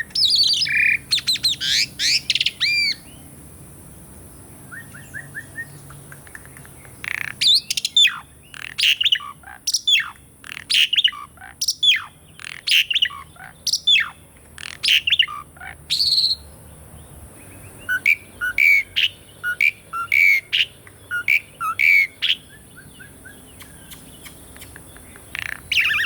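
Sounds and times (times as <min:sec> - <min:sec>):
starling singing whistled notes: 0:00.0 - 0:03.3, 0:04.7 - 0:16.6, 0:17.4 - 0:26.0
faint chirps: 0:17.4 - 0:26.0.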